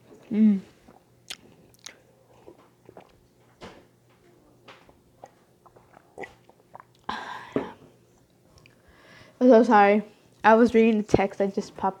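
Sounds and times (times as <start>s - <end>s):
mouth clicks and smacks: 0.9s - 2.0s
close chewing: 0.9s - 3.3s.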